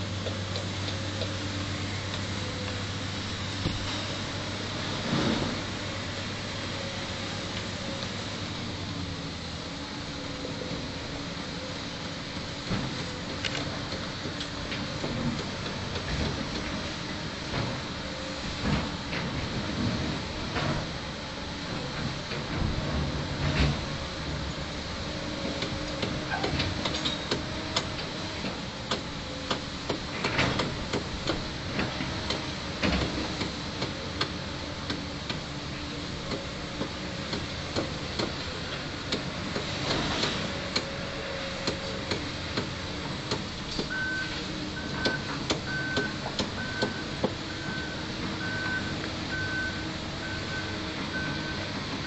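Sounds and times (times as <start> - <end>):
diesel engine running: 0.0 - 52.0
knocks and clanks of machinery: 25.4 - 35.4
reversing alarm beeping: 43.9 - 51.7.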